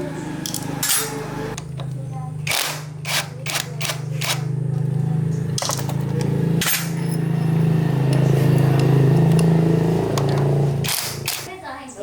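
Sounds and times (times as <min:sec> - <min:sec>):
low machine hum with flutter: 0:00.0 - 0:11.5
sharp metallic clicks and knocks: 0:00.4 - 0:04.5, 0:05.4 - 0:07.4, 0:08.1 - 0:11.5.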